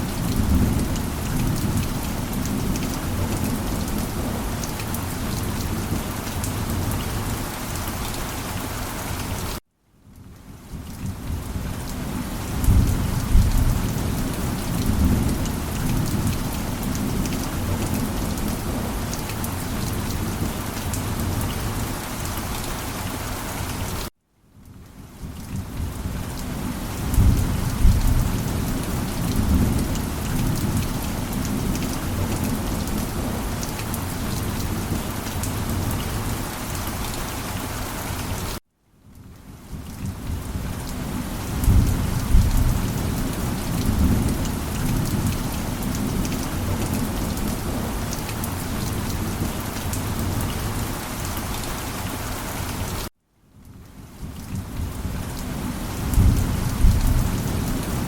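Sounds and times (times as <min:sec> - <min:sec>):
heavy rain: 0:00.0 - 0:58.0
low rolling thunder: 0:12.4 - 0:19.1, 0:25.6 - 0:33.6, 0:41.5 - 0:50.8, 0:54.5 - 0:58.0.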